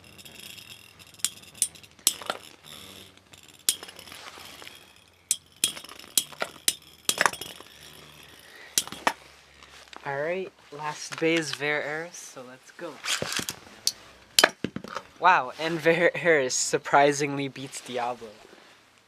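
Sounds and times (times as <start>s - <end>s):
spinning tops clashing metallic clinks: 0.0s - 9.2s.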